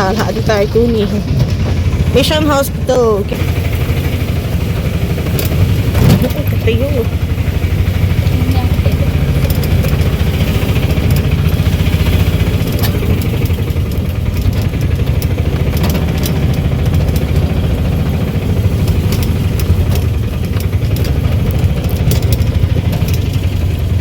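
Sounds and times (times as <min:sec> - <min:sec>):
engine running steadily: 0:00.0 - 0:24.0
light clicks and rattles: 0:05.2 - 0:24.0.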